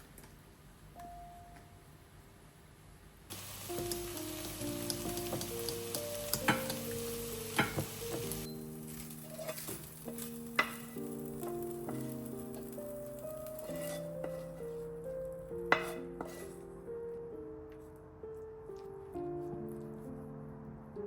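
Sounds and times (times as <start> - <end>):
soft piano music: 0.8 - 2.2, 3.3 - 21.0
food sizzling in a pan: 3.3 - 14.9, 15.7 - 16.5.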